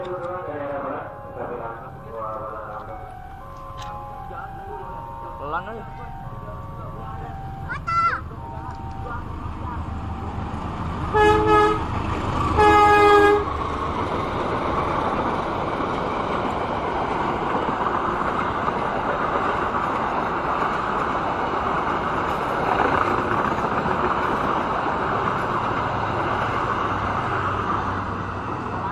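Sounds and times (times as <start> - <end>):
train carriages rolling on rails: 0.0 - 28.9
train horn toot: 11.1 - 11.9, 12.5 - 13.5.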